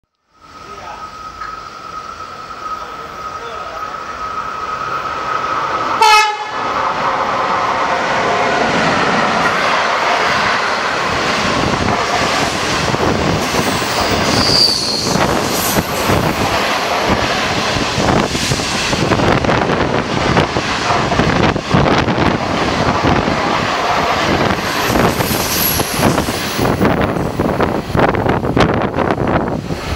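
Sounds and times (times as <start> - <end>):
train coaches rattling past: 0.4 - 29.9
train horn blast: 6.0 - 6.6.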